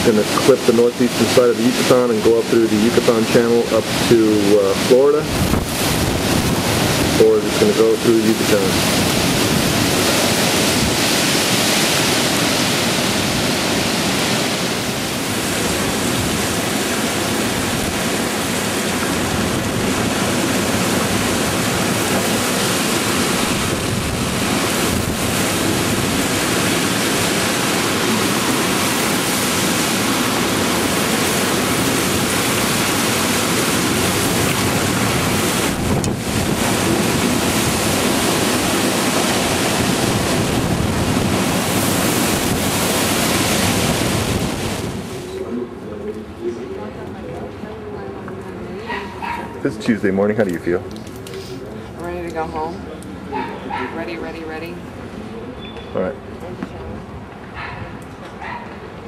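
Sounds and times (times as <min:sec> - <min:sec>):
strong gusting wind: 0:00.0 - 0:46.4
wind buffeting microphone: 0:02.1 - 0:45.8.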